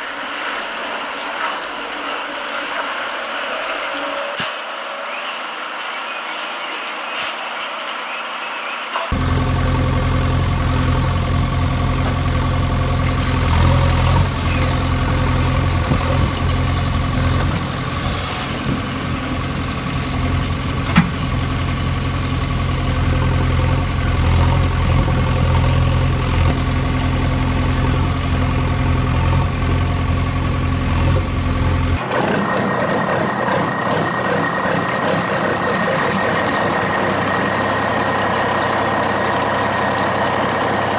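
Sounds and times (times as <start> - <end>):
engine idling: 9.2 - 32.0, 34.9 - 40.9.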